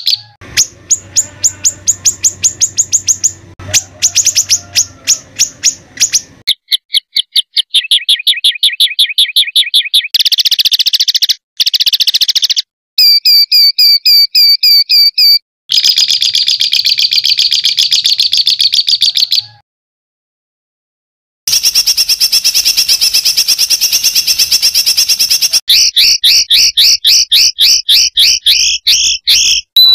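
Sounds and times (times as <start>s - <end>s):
songbird repeated high notes: 0.0s - 6.9s, 21.5s - 29.9s
fast rattling bird trill: 0.0s - 19.6s, 21.5s - 29.9s.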